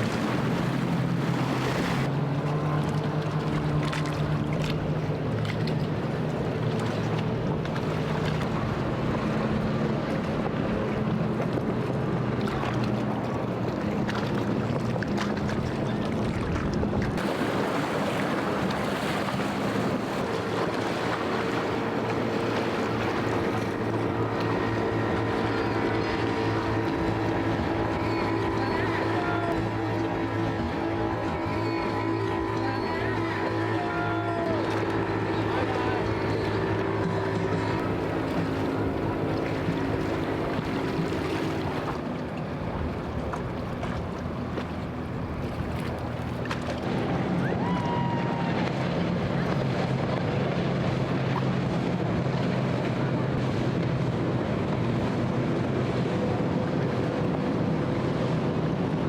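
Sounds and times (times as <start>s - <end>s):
motorboat engine humming: 0.0s - 59.0s
surf: 0.0s - 59.0s
waves: 0.0s - 59.0s
wind on microphone: 3.0s - 59.0s
wind noise on microphone: 14.9s - 21.6s.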